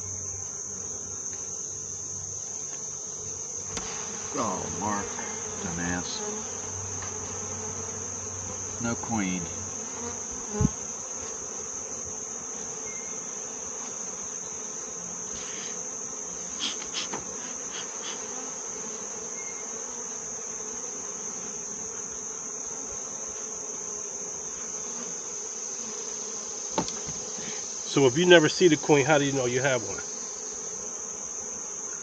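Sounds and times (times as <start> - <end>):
honeybees buzzing: 0.0 - 32.0
light knocks: 26.8 - 27.2.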